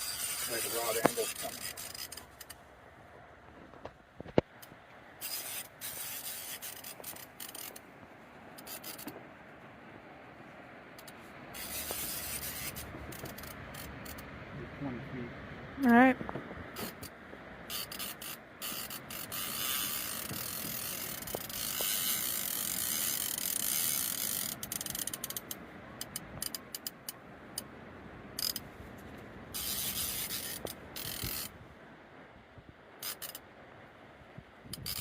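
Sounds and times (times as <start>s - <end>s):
fishing reel ratchet clicking: 0.0s - 2.6s, 5.2s - 7.8s, 8.6s - 9.1s, 17.7s - 27.0s, 28.4s - 28.6s, 29.6s - 31.5s, 33.0s - 33.4s, 34.7s - 35.0s
reel rasping: 0.0s - 2.6s, 5.2s - 7.8s, 8.6s - 9.2s, 11.0s - 14.3s, 17.7s - 27.7s, 28.4s - 28.6s, 29.6s - 31.5s, 33.0s - 33.4s, 34.7s - 35.0s.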